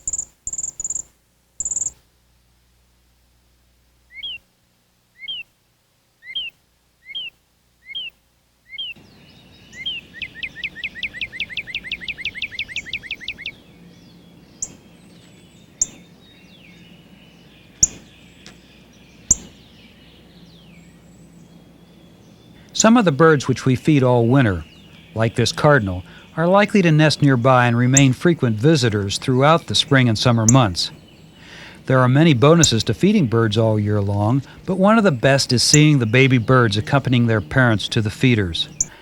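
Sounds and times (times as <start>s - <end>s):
bird trill: 0.0s - 2.0s, 4.1s - 4.5s, 5.2s - 5.6s, 6.2s - 28.5s, 32.4s - 33.0s, 38.5s - 39.0s
sharp loud bird chips: 0.0s - 2.0s, 4.1s - 4.4s, 6.2s - 8.1s, 8.7s - 13.6s, 14.6s - 14.9s, 15.6s - 16.8s, 17.6s - 18.5s, 19.2s - 20.3s, 32.5s - 32.9s, 38.6s - 39.0s
songbirds chirping: 0.0s - 39.0s.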